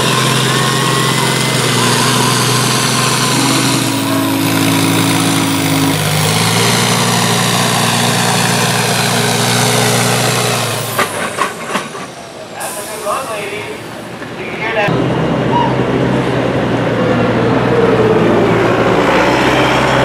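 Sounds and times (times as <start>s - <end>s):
tractor engine running under load: 0.0s - 12.3s.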